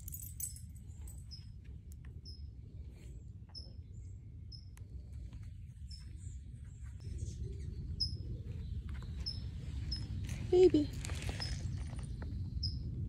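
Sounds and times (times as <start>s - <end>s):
steady low rumble: 0.0s - 13.0s
bird chirping: 5.8s - 12.8s.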